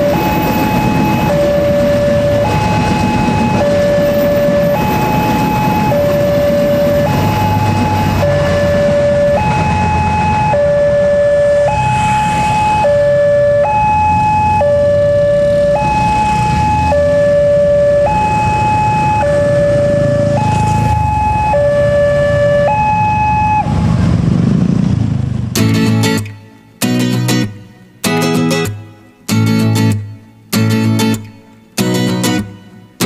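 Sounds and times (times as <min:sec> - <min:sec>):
level crossing two-tone alarm: 0:00.0 - 0:23.8
road traffic rumble: 0:00.0 - 0:33.0.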